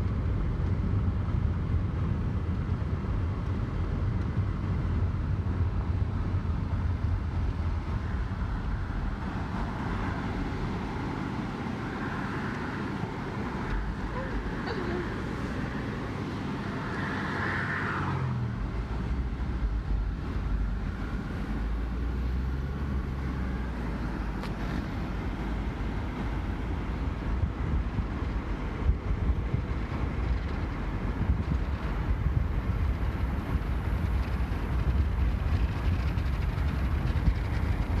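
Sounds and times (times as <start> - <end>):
car engine and road rumble: 0.0 - 38.0.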